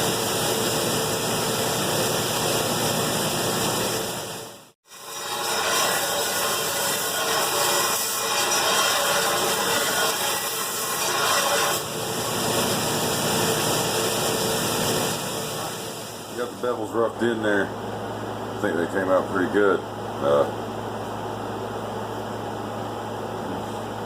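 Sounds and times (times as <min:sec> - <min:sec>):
belt grinder grinding steel: 0:04.9 - 0:12.7.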